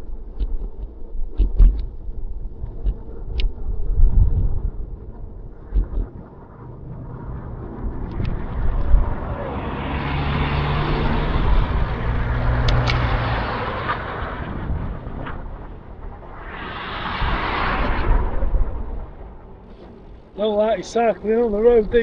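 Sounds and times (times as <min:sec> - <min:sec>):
car passing: 0:04.6 - 0:22.0.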